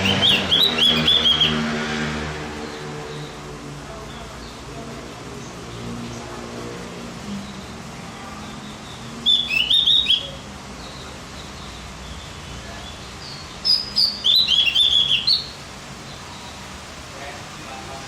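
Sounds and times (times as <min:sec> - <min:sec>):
songbird warbling: 0:00.0 - 0:01.7, 0:08.4 - 0:16.7.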